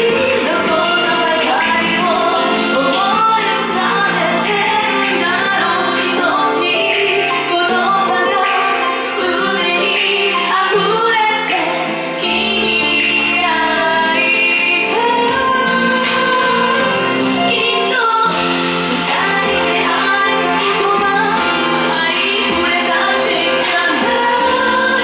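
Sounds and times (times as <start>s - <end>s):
woman singing gentle song: 0.0s - 18.3s
instrumental accompaniment: 0.0s - 25.0s.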